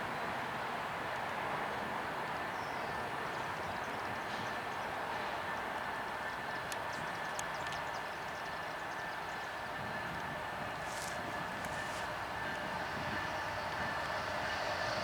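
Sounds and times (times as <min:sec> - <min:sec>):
distant freight train rumble: 0:00.0 - 0:15.0
faint clicks: 0:06.6 - 0:08.0.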